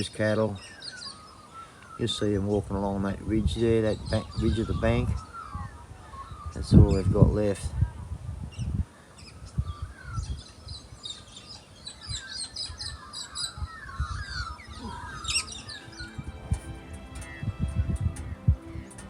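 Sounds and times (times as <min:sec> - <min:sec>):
birds chirping and warbling: 0:00.0 - 0:19.0
wind rumbling on microphone: 0:02.0 - 0:19.0
background music: 0:14.7 - 0:19.0.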